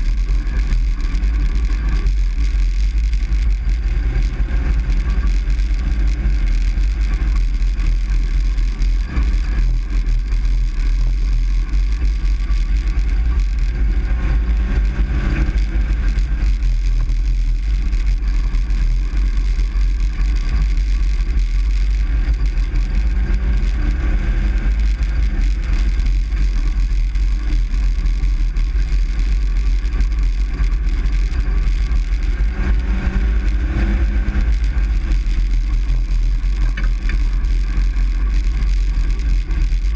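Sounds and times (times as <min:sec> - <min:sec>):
truck engine rumble from cab: 0:00.0 - 0:39.9.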